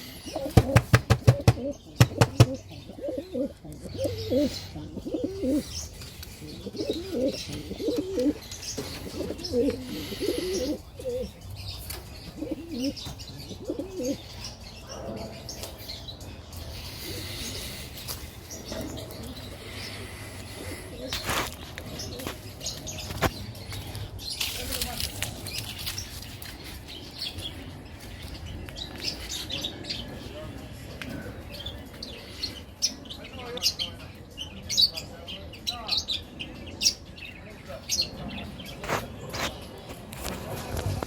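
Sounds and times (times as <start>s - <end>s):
pigeons cooing: 0.0s - 24.1s.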